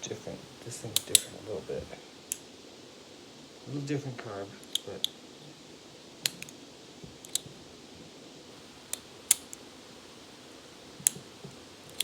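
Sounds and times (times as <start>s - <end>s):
chainsaw throttle linkage clicks: 8.9s - 9.6s.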